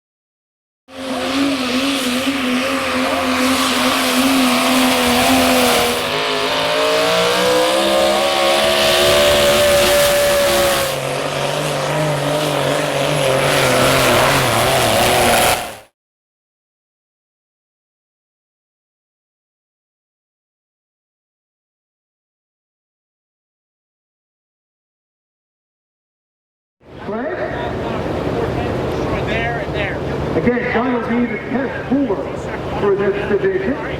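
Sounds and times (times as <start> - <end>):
truck engines revving under load: 0.9 - 15.9, 26.9 - 33.9.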